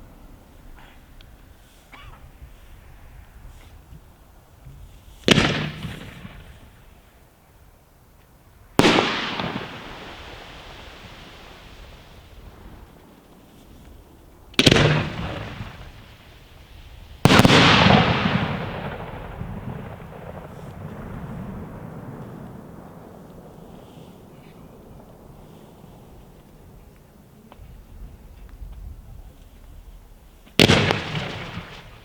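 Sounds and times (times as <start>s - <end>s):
firework bangs: 4.7s - 7.2s, 8.7s - 27.0s, 29.8s - 32.0s.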